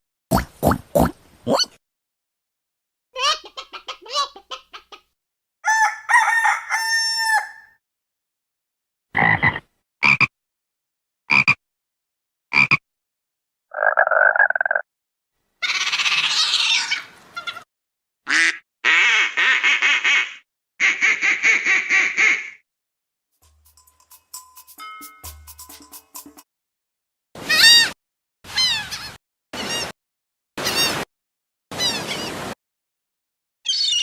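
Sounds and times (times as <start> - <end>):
rooster crowing: 5.6 - 7.8.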